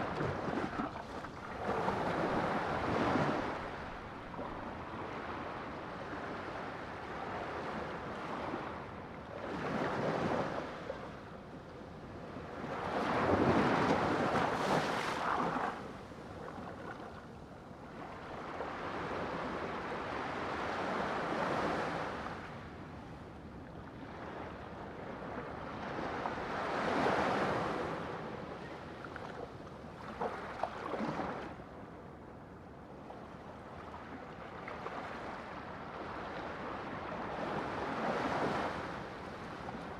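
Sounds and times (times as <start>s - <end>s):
sea waves breaking: 12.9s - 17.2s.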